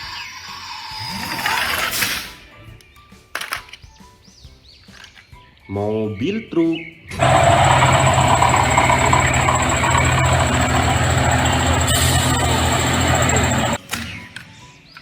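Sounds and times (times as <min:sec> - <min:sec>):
truck engine idling: 0:07.2 - 0:13.8.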